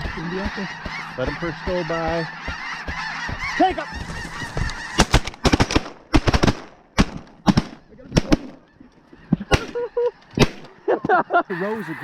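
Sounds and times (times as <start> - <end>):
shotgun shots: 4.9 - 8.6.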